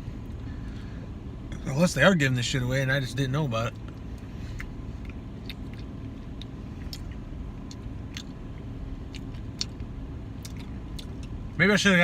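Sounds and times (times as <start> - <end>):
car idling: 0.0 - 12.0
chewing: 3.8 - 11.4.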